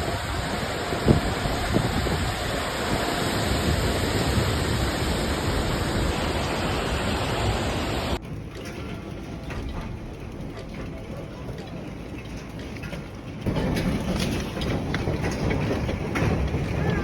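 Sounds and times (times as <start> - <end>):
heavy rain rushing: 0.0 - 8.2, 13.5 - 17.0.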